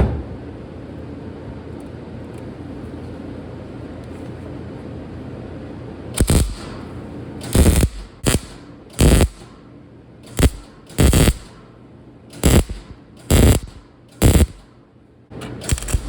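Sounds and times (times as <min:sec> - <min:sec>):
welder crackling bursts: 0:06.2 - 0:06.8, 0:07.4 - 0:09.5, 0:10.3 - 0:11.6, 0:12.4 - 0:14.7, 0:15.6 - 0:16.0
welder hum: 0:06.2 - 0:09.6, 0:10.2 - 0:11.7, 0:12.3 - 0:14.7, 0:15.4 - 0:16.0.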